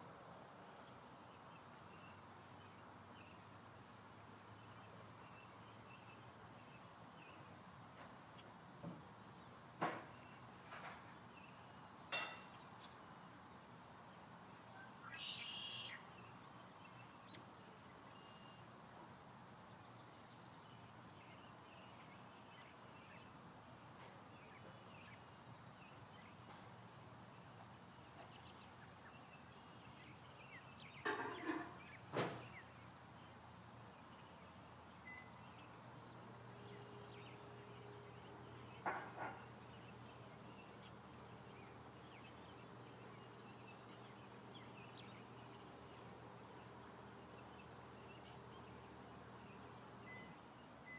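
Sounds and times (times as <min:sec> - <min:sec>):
brief rustles or knocks: 0:09.8 - 0:11.2
faint bird chirps: 0:14.7 - 0:16.4, 0:35.0 - 0:46.2, 0:47.0 - 0:50.9.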